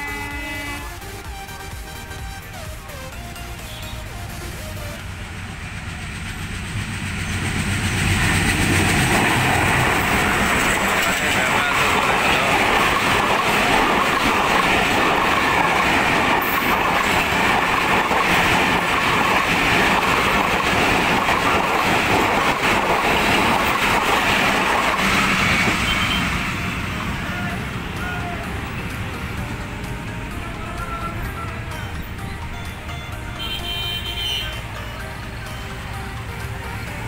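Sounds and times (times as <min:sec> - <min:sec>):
train wheels clattering over rails: 0:04.4 - 0:27.9.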